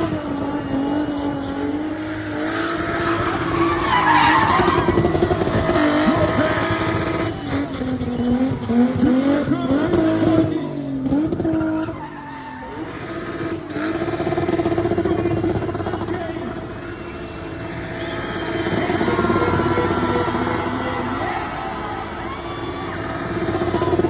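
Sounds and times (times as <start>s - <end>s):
car engine revving high: 0.0s - 24.0s
tyres squealing on tarmac: 2.3s - 8.4s, 11.5s - 13.3s.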